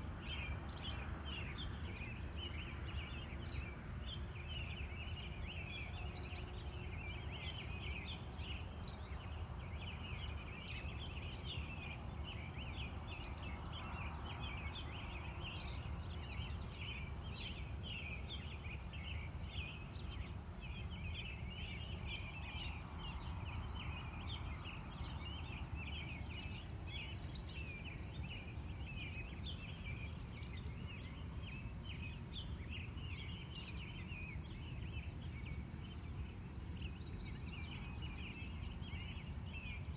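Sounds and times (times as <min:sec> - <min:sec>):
high pulsing insect trill: 0:00.2 - 0:39.9
bird chirps: 0:13.9 - 0:22.9, 0:36.5 - 0:39.8.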